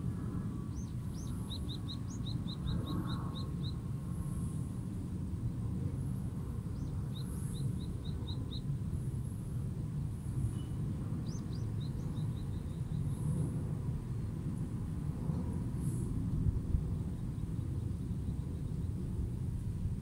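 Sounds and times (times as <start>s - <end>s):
low city background rumble: 0.0s - 20.0s
small bird chirping: 0.7s - 3.8s, 6.8s - 8.7s, 10.5s - 13.2s.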